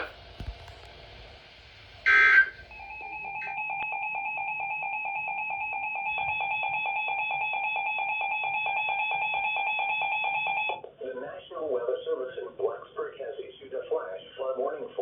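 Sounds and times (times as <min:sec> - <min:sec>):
loud tone burst: 0:01.9 - 0:07.4
electronic alarm beeping rapidly: 0:02.0 - 0:10.7.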